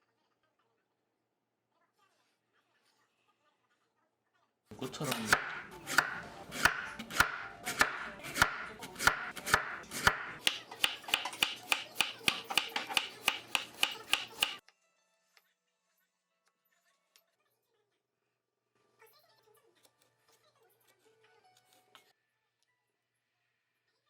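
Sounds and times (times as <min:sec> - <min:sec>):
knife cutting carrot on wooden board: 0:04.7 - 0:14.6.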